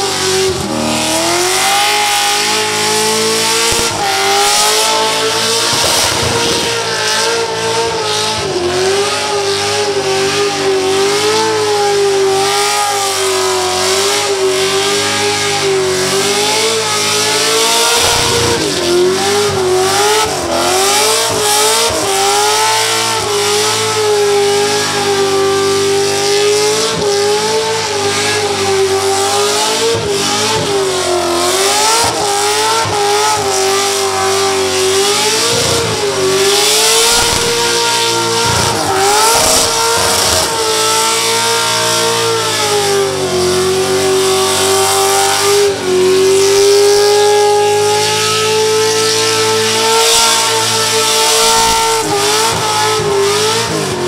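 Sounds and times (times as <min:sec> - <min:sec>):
car engine revving high: 0:00.0 - 0:54.0
spinning tyres hissing: 0:00.0 - 0:54.0.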